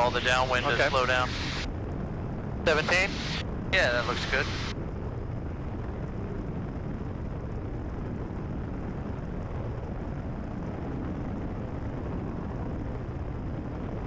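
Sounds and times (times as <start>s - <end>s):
rushing airflow: 0.0s - 10.5s
airplane engine and propeller drone: 0.0s - 14.0s.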